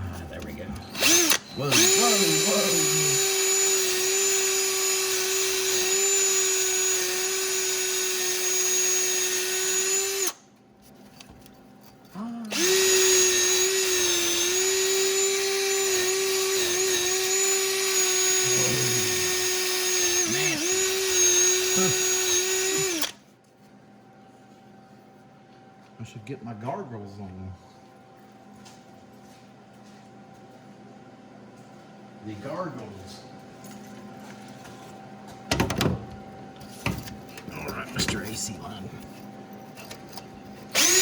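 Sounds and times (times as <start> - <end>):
electric drill running: 0.9 - 10.4, 12.5 - 23.2, 40.7 - 41.0.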